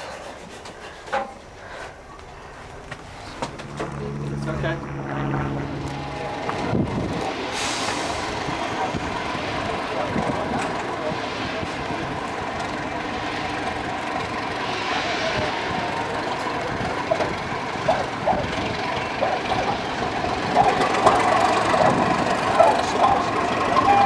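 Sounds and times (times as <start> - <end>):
passenger train running slowly: 0.0 - 24.0.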